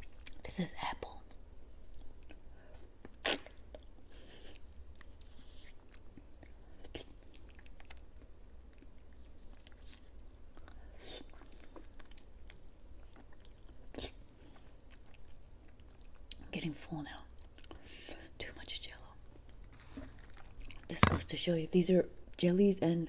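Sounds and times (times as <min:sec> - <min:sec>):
chewing soft fruit jelly: 0:01.7 - 0:16.5.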